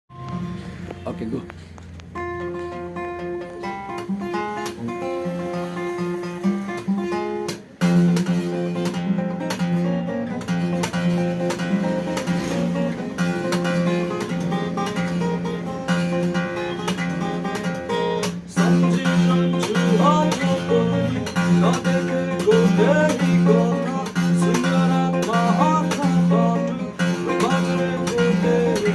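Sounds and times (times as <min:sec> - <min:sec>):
acoustic guitar chords: 0:00.1 - 0:28.9
guitar melody with sliding notes: 0:00.1 - 0:28.9.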